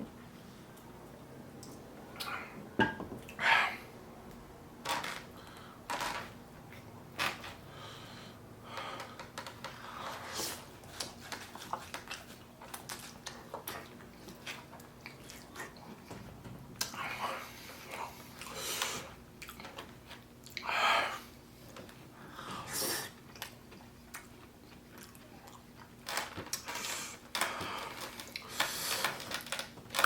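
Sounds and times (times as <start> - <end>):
person chewing: 23.3 - 27.1.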